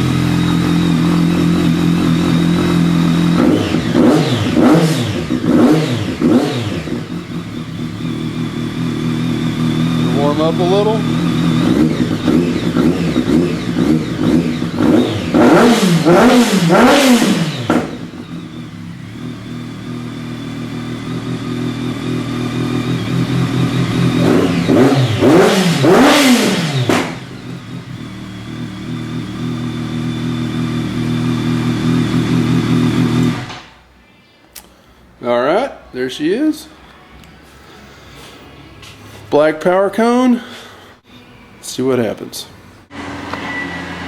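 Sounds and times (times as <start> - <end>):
motorcycle engine idling: 0.0 - 33.5
motorcycle throttle blips: 0.0 - 33.7.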